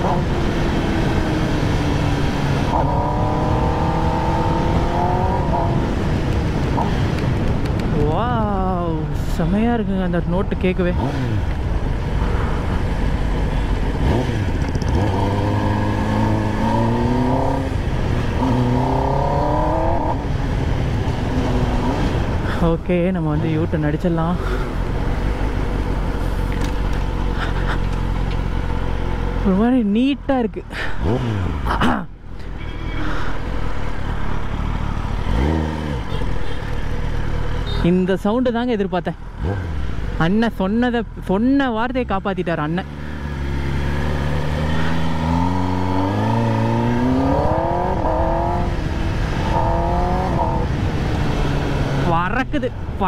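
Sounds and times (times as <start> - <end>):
motorcycle engine accelerating: 0.0 - 7.6, 13.2 - 22.4, 34.4 - 37.8, 42.7 - 52.5.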